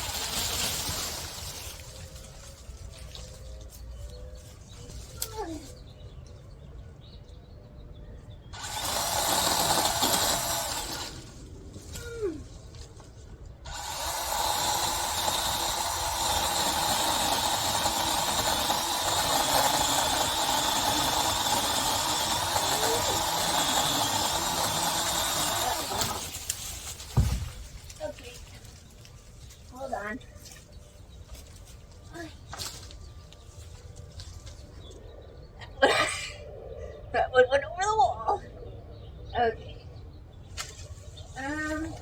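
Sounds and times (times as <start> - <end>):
chainsaw cutting branches: 0.0 - 3.9, 8.6 - 12.9, 13.6 - 28.5.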